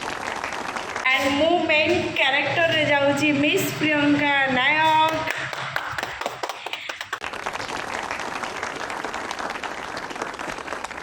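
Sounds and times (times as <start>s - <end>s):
crowd applauding: 0.0s - 1.5s, 5.1s - 11.0s.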